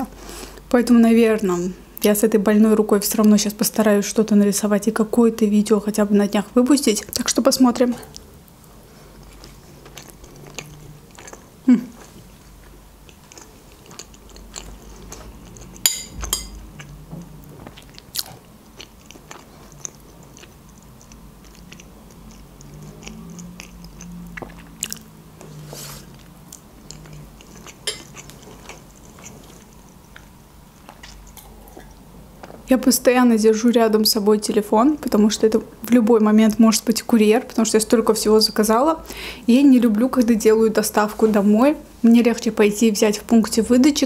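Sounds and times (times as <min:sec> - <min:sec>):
chewing and biting soft food: 0:09.0 - 0:32.6.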